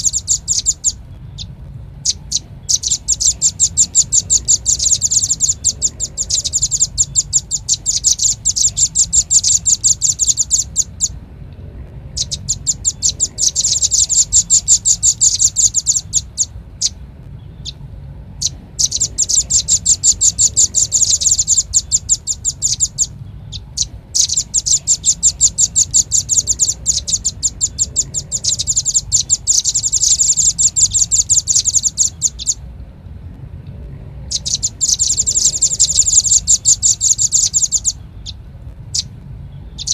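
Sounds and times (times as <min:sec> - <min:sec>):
bird calling in rapid trills: 0:00.0 - 0:11.2, 0:12.0 - 0:32.7, 0:34.2 - 0:39.9
faint low hum: 0:00.0 - 0:39.9.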